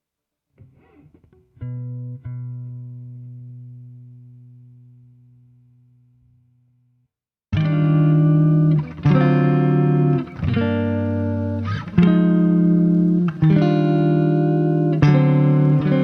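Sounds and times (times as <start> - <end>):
background music chords: 7.6 - 16.0.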